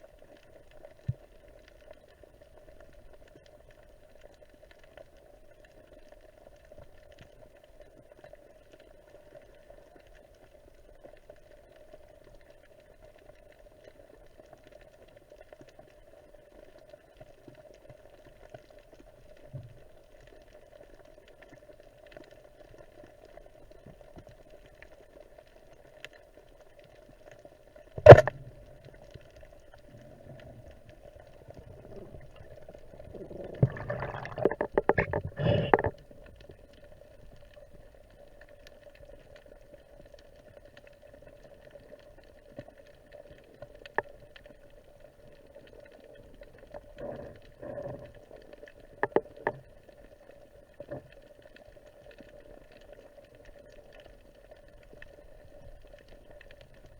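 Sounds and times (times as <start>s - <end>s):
faint underwater hum: 0.0s - 56.9s.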